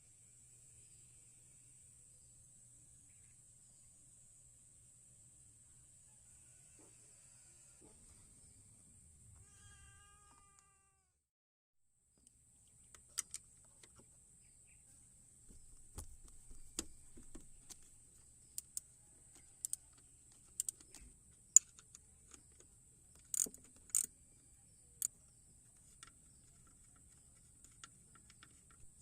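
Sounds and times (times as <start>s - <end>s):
sharp clicks and knocks: 15.5s - 17.9s, 18.6s - 24.1s.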